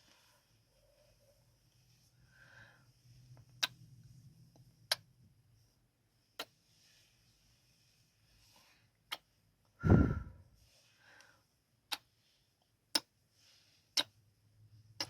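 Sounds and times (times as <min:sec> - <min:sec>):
faint breathing: 0:02.1 - 0:03.3, 0:09.8 - 0:11.5.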